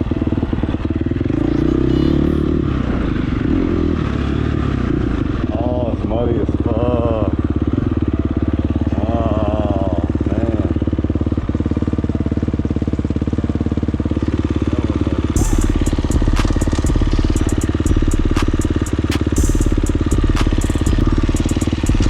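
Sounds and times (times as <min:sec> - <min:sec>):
dirt bike engine running: 0:00.0 - 0:22.0
sharp clicks and rattles: 0:15.4 - 0:22.0.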